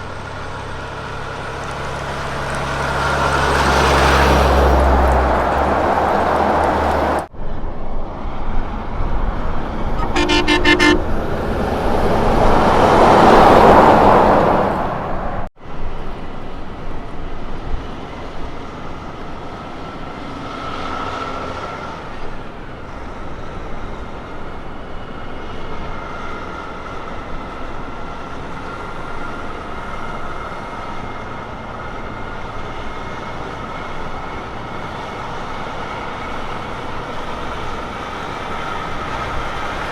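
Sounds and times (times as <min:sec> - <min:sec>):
heavy truck running on road: 0:00.0 - 0:39.9
truck passing loudly: 0:00.0 - 0:39.9
truck air horn toot: 0:09.9 - 0:11.6.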